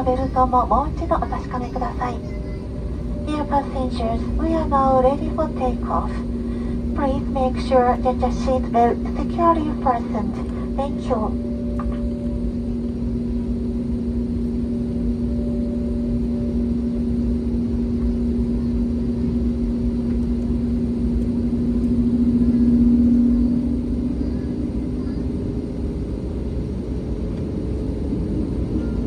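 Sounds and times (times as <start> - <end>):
jet engines humming in cabin: 0.0 - 29.0.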